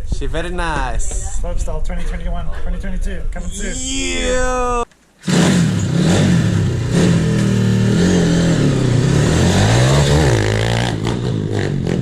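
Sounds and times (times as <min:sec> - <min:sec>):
vehicle engine revving: 0:05.2 - 0:12.0.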